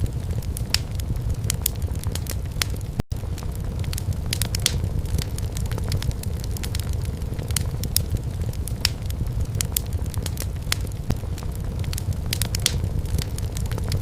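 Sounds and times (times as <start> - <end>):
firewood crackling and popping: 0.0 - 14.0
low fire rumble: 0.0 - 14.0.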